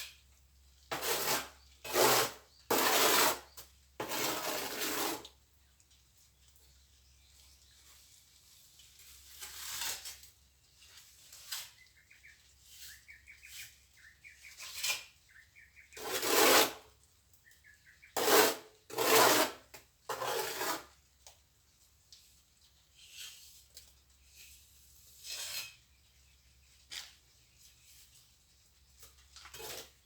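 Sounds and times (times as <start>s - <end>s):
trowel scraping mortar: 0.9s - 5.3s, 9.0s - 10.4s, 11.0s - 11.8s, 12.6s - 13.8s, 14.4s - 15.2s, 16.0s - 16.9s, 18.2s - 20.9s, 23.0s - 26.0s, 29.0s - 30.0s.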